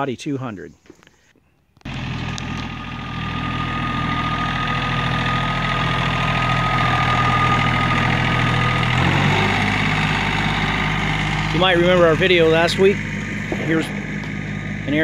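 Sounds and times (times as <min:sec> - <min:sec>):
tractor diesel engine running: 0:01.9 - 0:15.0
high whine: 0:07.0 - 0:15.0.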